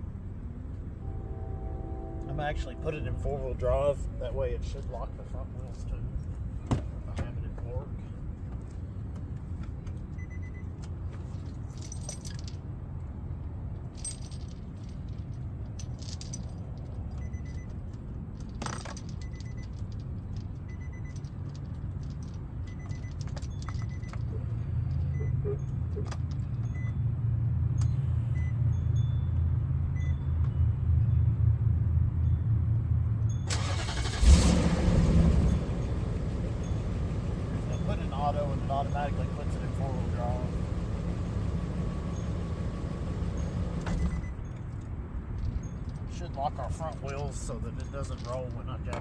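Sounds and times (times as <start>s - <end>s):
car engine idling: 0.9s - 7.8s, 33.5s - 44.4s
keys jingling: 11.3s - 12.6s.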